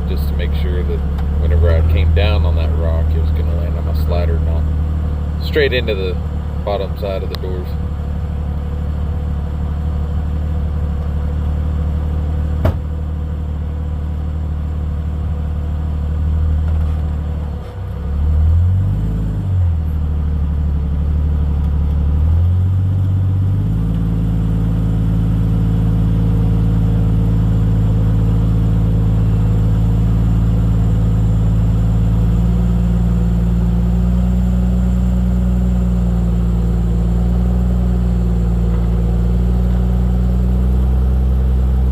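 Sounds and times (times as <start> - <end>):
car engine running at low speed: 0.0 - 41.9
sharp knock: 12.6 - 12.9.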